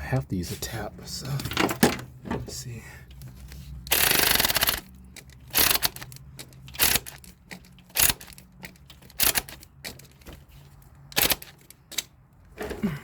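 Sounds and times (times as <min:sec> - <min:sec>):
hand tools clicking and clattering: 0:03.9 - 0:13.0.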